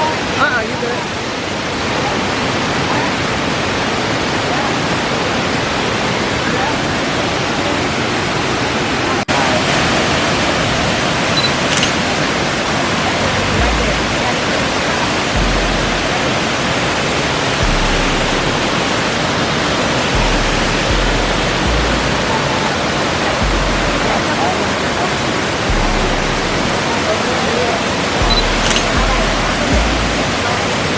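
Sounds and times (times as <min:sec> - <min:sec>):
waterfall rushing: 0:00.0 - 0:30.9
low rumbling on microphone: 0:15.4 - 0:16.2, 0:17.6 - 0:18.8, 0:20.2 - 0:22.5, 0:23.3 - 0:24.3, 0:25.6 - 0:26.9, 0:28.2 - 0:30.4.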